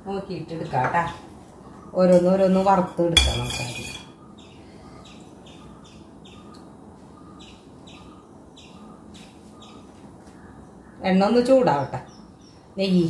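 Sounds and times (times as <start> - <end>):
small bird chirping: 4.1 - 13.0.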